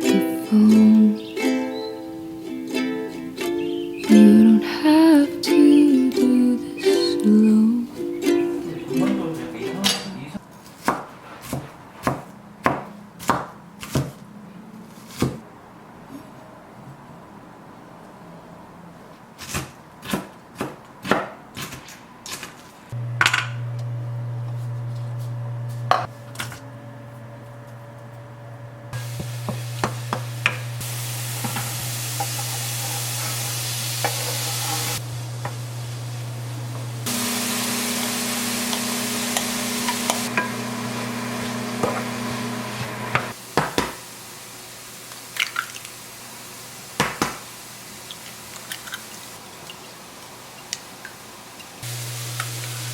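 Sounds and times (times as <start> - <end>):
chopping on a board: 10.8 - 14.2, 20.0 - 21.4
low hum: 23.0 - 43.2
hissing: 23.0 - 43.4, 51.8 - 52.9
pans and utensils clinking: 29.0 - 35.6, 37.6 - 40.7.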